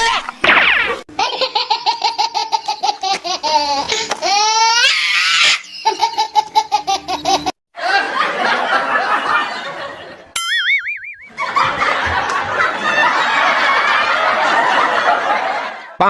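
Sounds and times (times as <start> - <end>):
hearty laughter: 5.7 - 10.3, 11.3 - 16.0
short wobbling tone: 10.4 - 11.4.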